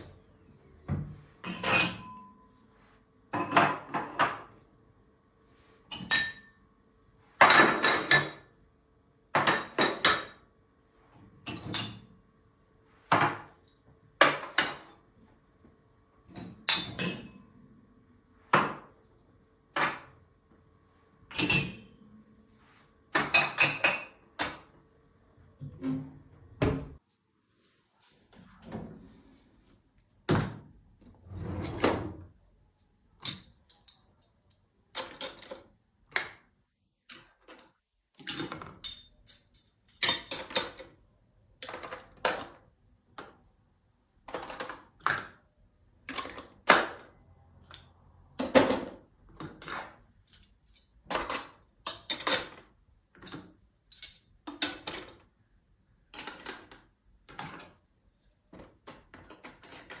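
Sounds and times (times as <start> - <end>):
dishes clattering: 0.9 - 2.4, 3.4 - 4.6, 7.4 - 8.5, 21.3 - 22.0, 23.2 - 24.7.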